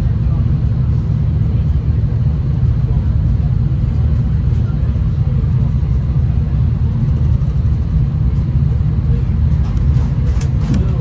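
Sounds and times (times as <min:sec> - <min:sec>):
train wheels on rails rumbling: 0:06.2 - 0:11.0.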